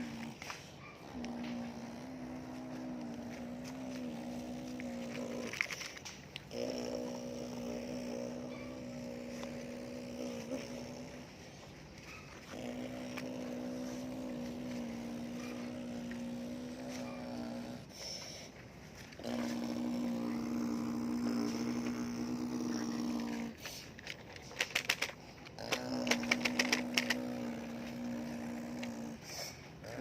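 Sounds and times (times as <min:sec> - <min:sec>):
sharp clicks: 0:23.2 - 0:27.5.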